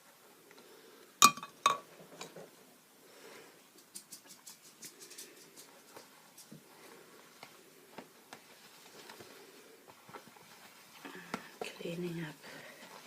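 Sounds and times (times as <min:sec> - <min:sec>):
painting tools clicking and tapping: 0:03.7 - 0:06.6.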